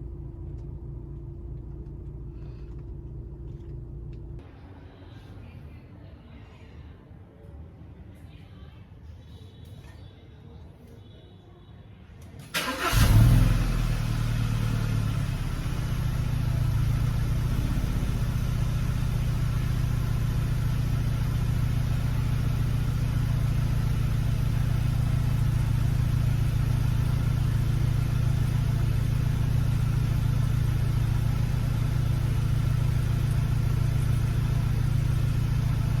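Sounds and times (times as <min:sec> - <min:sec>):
car engine starting and idling: 0:00.0 - 0:04.4, 0:12.4 - 0:36.0.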